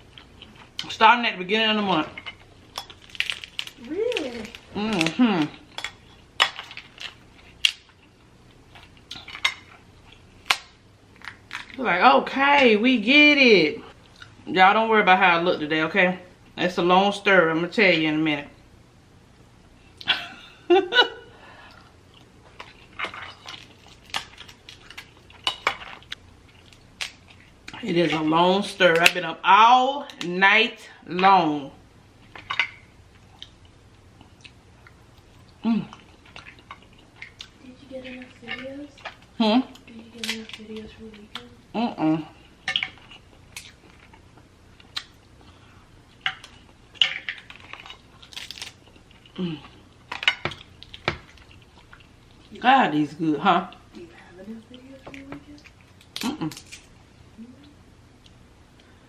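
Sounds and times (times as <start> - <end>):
crab shells cracking: 2.3 - 8.0, 22.6 - 27.6, 39.8 - 41.5, 46.2 - 52.2, 55.2 - 57.0
crab shell cracking: 2.8 - 5.1, 46.2 - 49.4, 55.6 - 57.0
eating sounds: 33.2 - 46.8.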